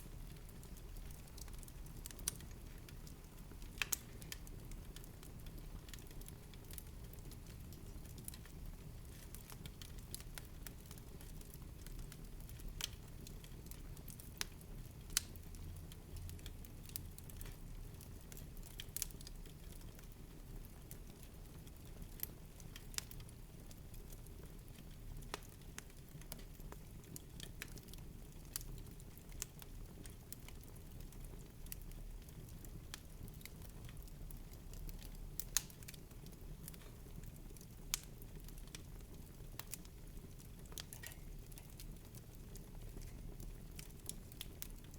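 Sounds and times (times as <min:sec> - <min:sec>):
wood fire crackling and popping: 0:00.0 - 0:44.9.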